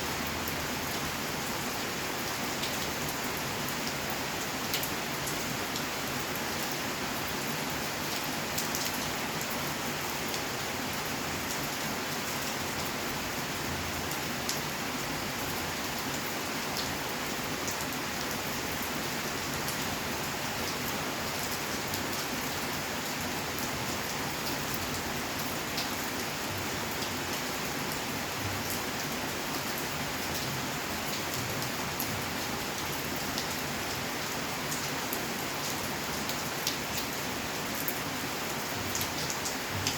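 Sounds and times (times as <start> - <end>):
rain pattering: 23.2 - 39.9.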